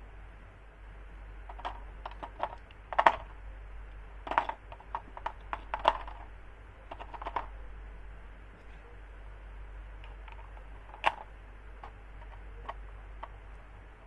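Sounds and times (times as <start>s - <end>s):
hard objects clicking and knocking: 1.5s - 3.4s, 4.2s - 7.6s, 10.0s - 13.4s.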